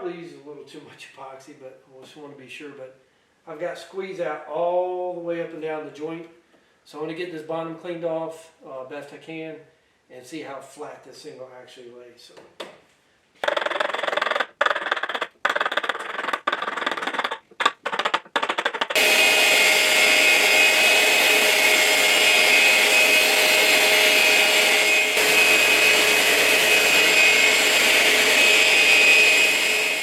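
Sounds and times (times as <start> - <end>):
electric sander on wood: 13.4 - 30.0.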